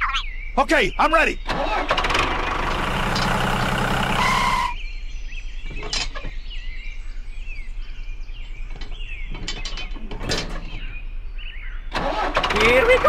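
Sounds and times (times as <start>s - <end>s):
faint bird chirps: 0.0s - 1.4s
engine running: 1.2s - 4.8s, 5.5s - 6.5s, 7.2s - 13.0s.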